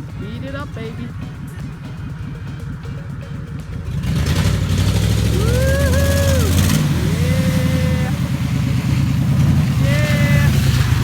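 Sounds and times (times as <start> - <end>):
vehicle engine revving in mud: 3.9 - 11.0.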